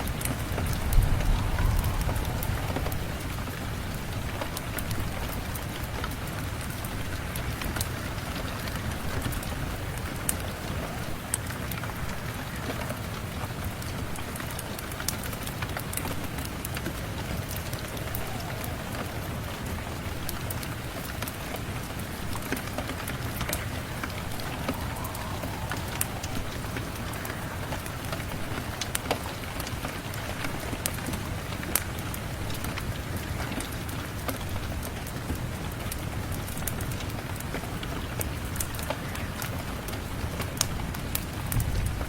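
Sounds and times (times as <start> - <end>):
wood fire crackling: 0.0 - 33.3
steady rain: 0.0 - 42.0.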